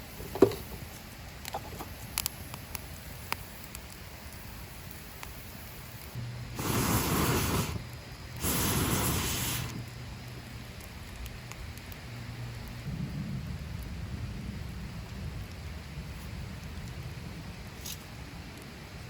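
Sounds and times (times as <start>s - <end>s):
wood fire crackling: 0.0s - 19.0s
loud hissing rushes: 5.7s - 9.9s.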